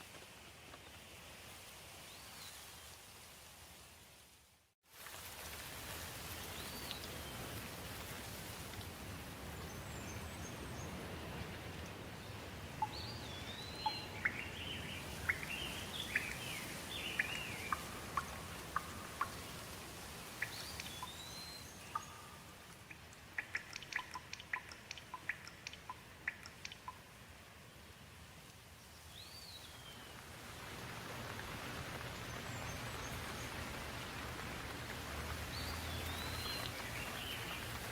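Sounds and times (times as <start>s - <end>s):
steady rain: 0.0s - 37.9s
water dripping: 5.1s - 8.9s, 12.7s - 27.4s, 29.6s - 37.9s
songbirds calling: 9.5s - 19.6s, 20.3s - 27.1s, 35.3s - 37.9s.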